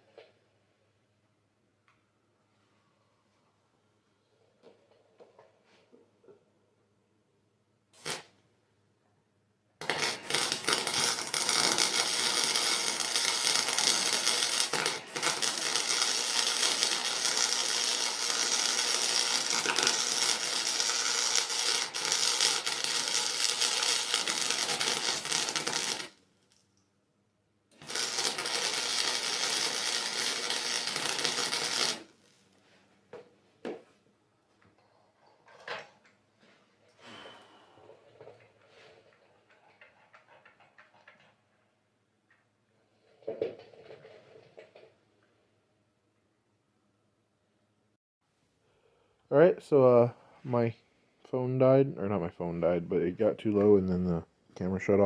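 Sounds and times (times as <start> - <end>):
crackling metalworking tool on metal: 8.0 - 8.3, 9.8 - 26.7, 27.7 - 32.6.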